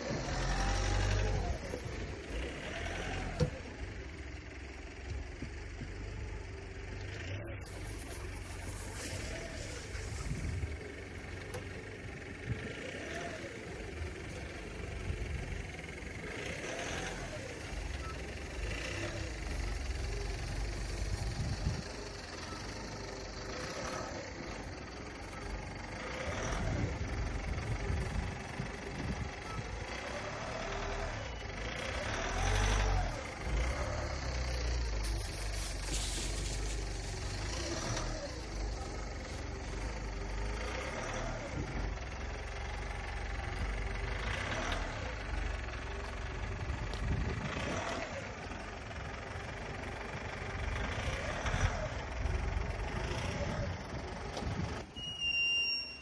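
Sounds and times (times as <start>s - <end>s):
vehicle engine revving under load: 0.0s - 55.0s
car engine revving: 12.5s - 20.3s.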